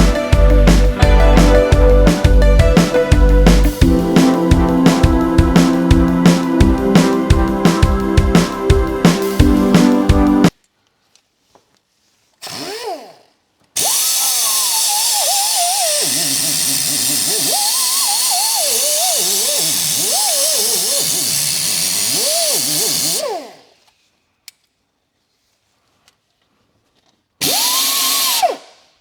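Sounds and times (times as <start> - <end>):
power tool motor whining: 12.4 - 13.2, 13.8 - 23.8, 27.4 - 28.8.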